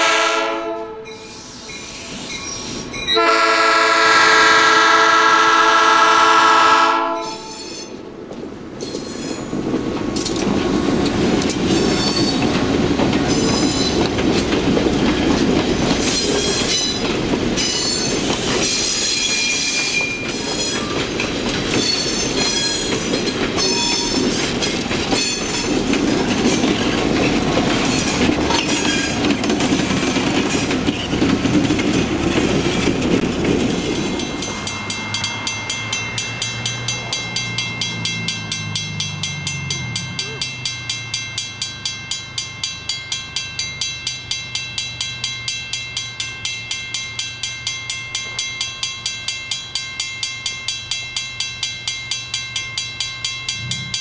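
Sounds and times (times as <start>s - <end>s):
diesel locomotive horn: 0.0s - 1.2s, 3.1s - 7.6s
crossing warning bell ringing: 0.0s - 8.1s, 8.8s - 54.0s
high wheel squeal: 1.0s - 3.2s, 7.2s - 8.0s, 8.8s - 9.5s, 11.7s - 12.5s, 15.8s - 21.0s, 21.6s - 24.6s
wheels clacking over rail joints: 7.3s - 54.0s.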